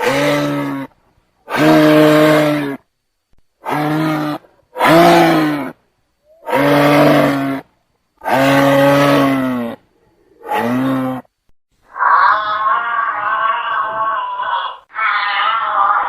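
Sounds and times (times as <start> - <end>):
animal long even calls: 0.0 - 2.8, 3.6 - 11.3, 11.9 - 16.0
animal wavering wail: 3.6 - 7.6, 8.2 - 9.8, 11.9 - 16.0.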